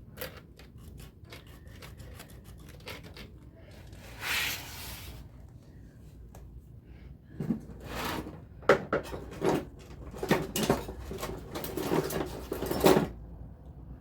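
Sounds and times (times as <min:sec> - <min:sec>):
scraping sounds: 0:00.9 - 0:05.3.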